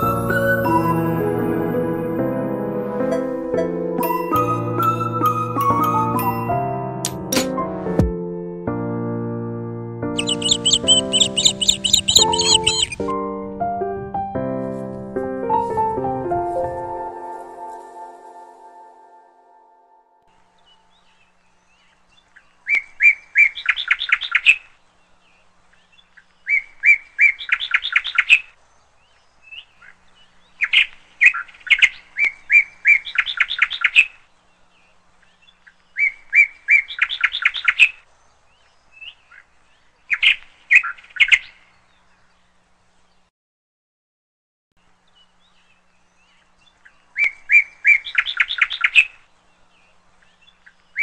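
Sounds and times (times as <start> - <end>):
single bird chirps: 10.2 - 13.1
songbird singing trill phrase: 10.2 - 13.1.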